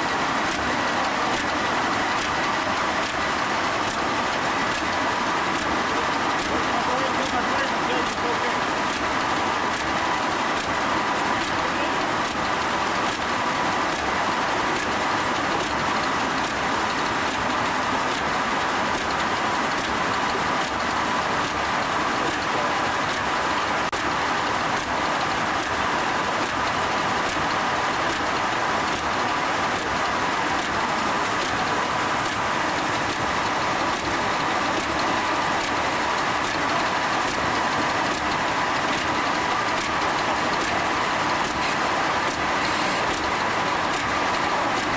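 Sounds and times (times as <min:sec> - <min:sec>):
sawmill machinery whining: 0:19.5 - 0:23.8, 0:28.8 - 0:44.9.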